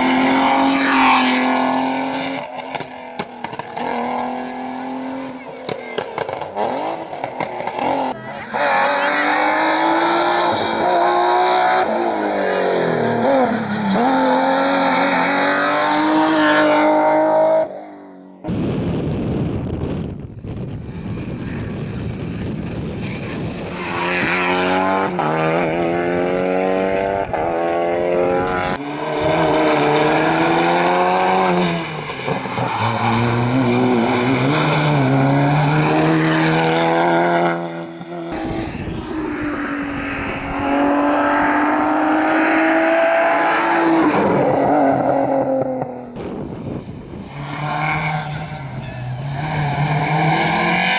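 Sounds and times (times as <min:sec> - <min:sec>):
rally car engines revving: 0:00.0 - 0:18.6, 0:20.4 - 0:50.9
rushing noise: 0:38.4 - 0:43.2.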